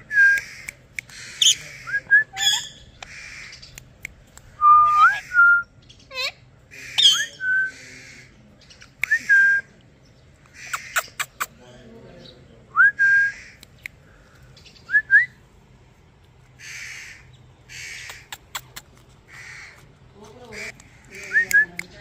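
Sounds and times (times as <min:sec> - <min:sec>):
sharp bird clicks: 0:00.3 - 0:01.6, 0:02.9 - 0:04.6, 0:10.4 - 0:11.6, 0:13.4 - 0:14.8, 0:17.7 - 0:19.9, 0:20.6 - 0:22.0
harsh breathy bird calls: 0:10.5 - 0:11.8, 0:13.3 - 0:14.9.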